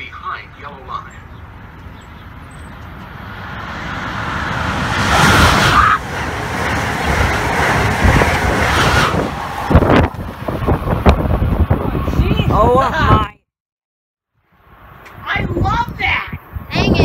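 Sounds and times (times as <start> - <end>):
high-speed train passing: 0.0 - 12.7
wind buffeting: 0.0 - 13.4, 15.1 - 17.0.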